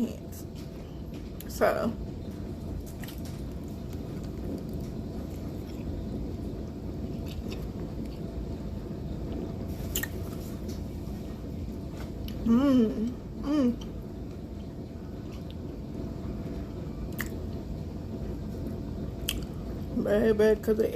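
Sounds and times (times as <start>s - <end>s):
person chewing and biting food: 7.0s - 8.2s, 17.1s - 17.4s.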